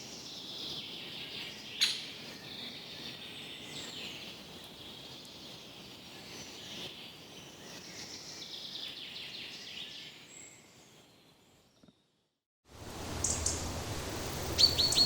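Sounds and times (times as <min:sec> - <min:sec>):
birds chirping and calling: 0:14.4 - 0:15.0.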